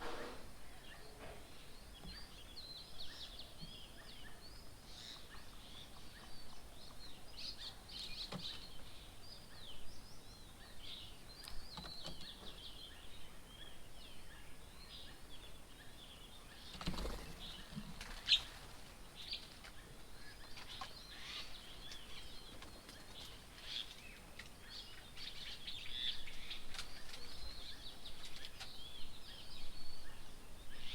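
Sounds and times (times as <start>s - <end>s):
many birds chirping: 0.0s - 30.9s.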